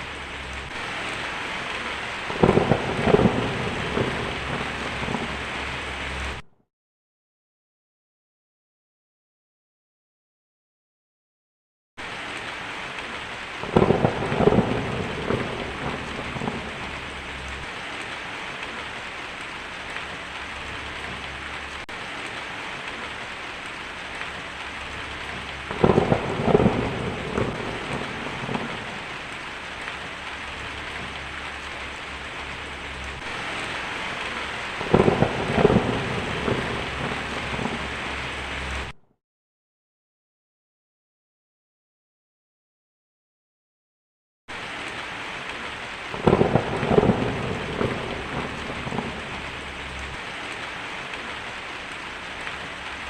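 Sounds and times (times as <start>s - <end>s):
steady rain: 0.0s - 6.4s, 12.0s - 39.0s, 44.5s - 53.0s
thunder claps: 0.1s - 6.4s, 13.6s - 19.0s, 23.8s - 39.0s, 46.1s - 51.5s.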